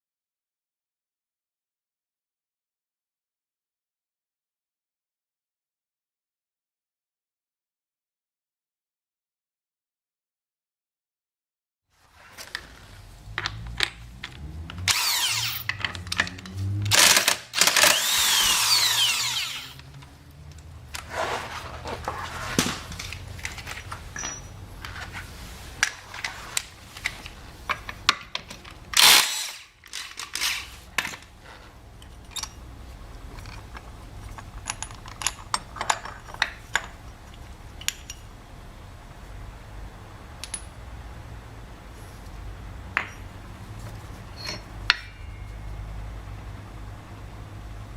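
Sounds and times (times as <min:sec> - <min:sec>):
metal parts clicking and knocking: 0:13.3 - 0:21.1, 0:22.6 - 0:25.2, 0:25.8 - 0:38.3, 0:40.4 - 0:40.8, 0:44.3 - 0:45.6
handheld power tool bursts: 0:14.8 - 0:15.8, 0:16.8 - 0:19.8, 0:29.0 - 0:30.7.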